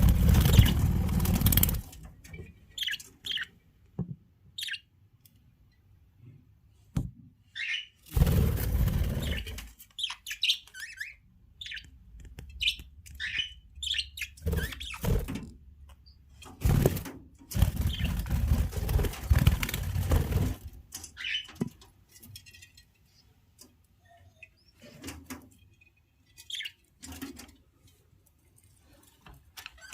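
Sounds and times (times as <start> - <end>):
wings fluttering and rustling: 0.0 - 3.4, 8.1 - 10.1, 16.4 - 22.6
budgerigars chirping: 0.4 - 0.8, 2.8 - 3.5, 7.6 - 7.9, 12.6 - 15.0, 21.2 - 21.5.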